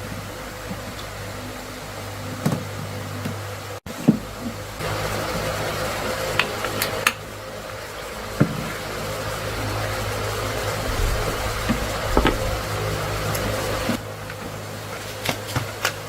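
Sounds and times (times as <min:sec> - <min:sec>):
machine hum: 0:00.0 - 0:15.3
sharp clicks and knocks: 0:10.9 - 0:12.7.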